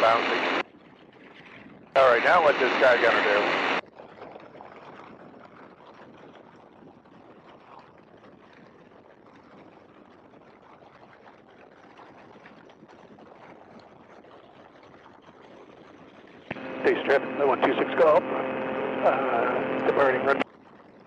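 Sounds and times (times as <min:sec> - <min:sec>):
faint rushing noise: 0:16.5 - 0:20.4.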